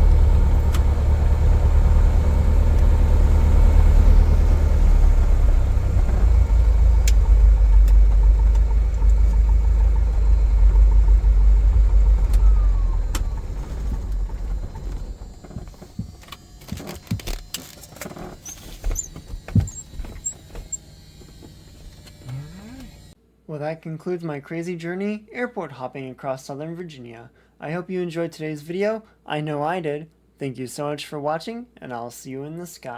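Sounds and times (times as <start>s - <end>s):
aircraft piston engine droning: 0.0s - 23.2s.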